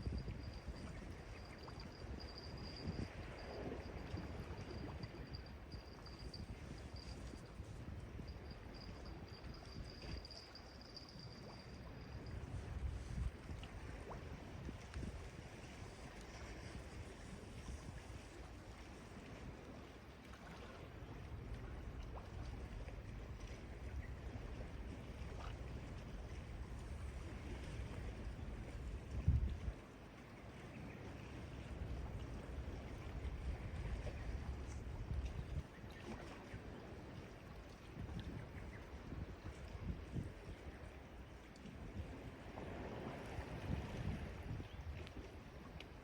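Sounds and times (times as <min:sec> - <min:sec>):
faint ticks: 0:00.0 - 0:15.3, 0:45.0 - 0:46.0
sea water lapping on shore: 0:00.0 - 0:46.0
thin high steady tone: 0:08.2 - 0:13.2.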